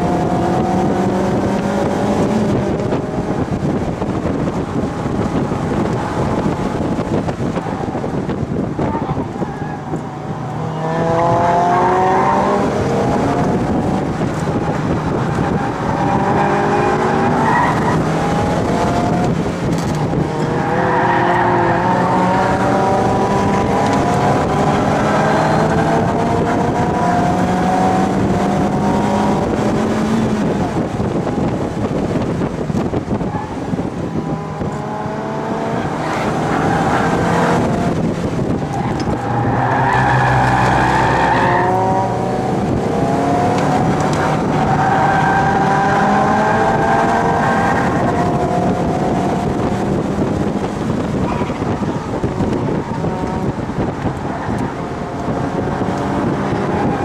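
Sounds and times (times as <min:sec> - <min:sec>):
car engine revving hard: 0:00.0 - 0:57.0.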